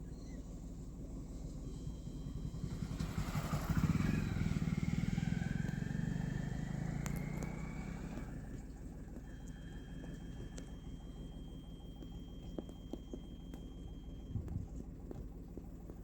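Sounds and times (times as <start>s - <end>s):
vehicle engine passing by: 2.4s - 8.6s.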